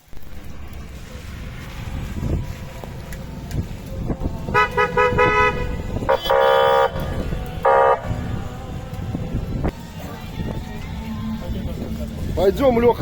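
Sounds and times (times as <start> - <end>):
vehicle horns honking: 4.5 - 8.5.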